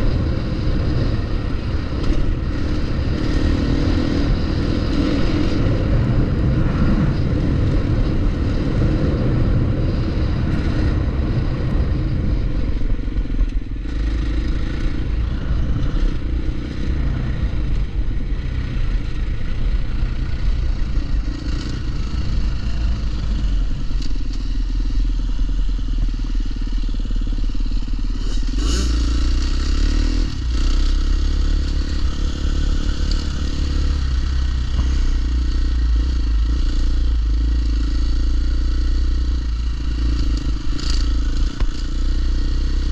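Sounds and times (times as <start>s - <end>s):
dirt bike engine revving: 0.0s - 11.4s, 13.8s - 24.5s, 26.6s - 42.9s.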